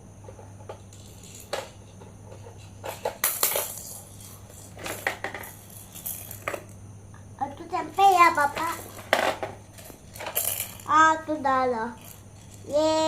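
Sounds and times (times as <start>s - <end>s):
plastic toys clattering: 0.7s - 6.8s, 7.9s - 11.0s, 11.9s - 13.0s.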